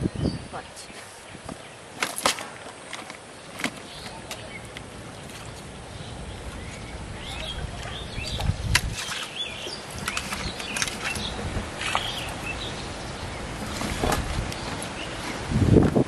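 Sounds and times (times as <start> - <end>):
small birds chirping: 3.2 - 15.5.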